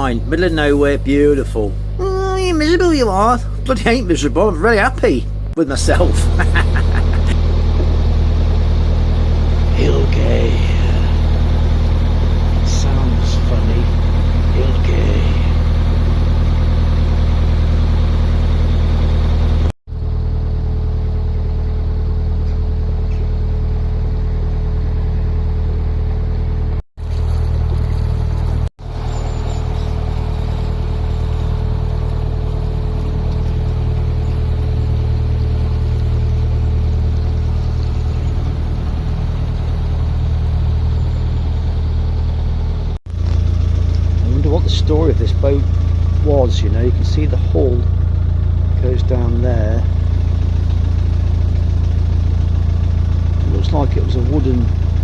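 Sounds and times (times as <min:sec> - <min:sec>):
boat diesel engine droning: 0:00.0 - 0:55.0.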